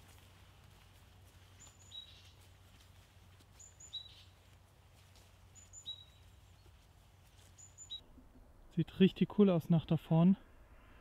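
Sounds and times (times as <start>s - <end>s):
small bird calling: 1.5s - 2.5s, 3.5s - 4.5s, 5.5s - 8.2s.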